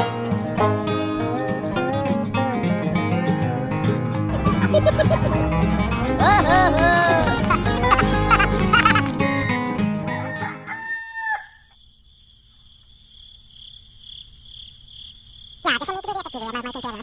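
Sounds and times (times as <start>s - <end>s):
music: 0.0s - 10.8s
rooster crowing: 8.8s - 11.8s
crickets chirping: 10.2s - 17.0s.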